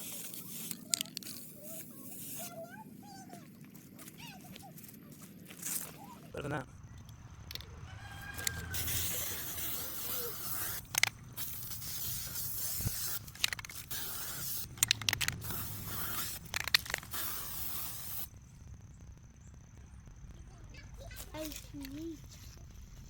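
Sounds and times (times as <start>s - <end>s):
aerosol spray paint hissing: 0.0s - 2.6s, 8.2s - 18.4s
sharp clicks: 13.2s - 17.5s.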